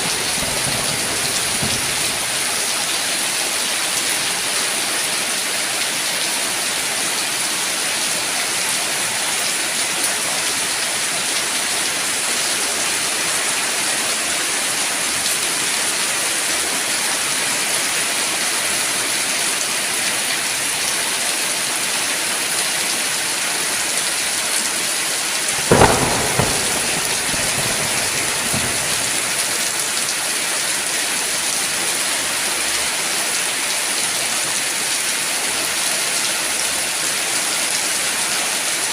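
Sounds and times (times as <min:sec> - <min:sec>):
thunderclap: 0:00.0 - 0:02.7, 0:25.5 - 0:29.9
thunder rumbles: 0:00.0 - 0:02.8, 0:25.5 - 0:30.0
heavy rainfall: 0:00.0 - 0:38.9.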